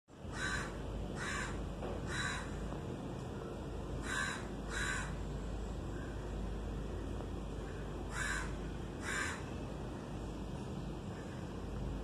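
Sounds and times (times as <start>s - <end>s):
steady low hum: 0.1s - 12.0s
bird harsh calls: 4.0s - 5.2s, 7.6s - 9.5s.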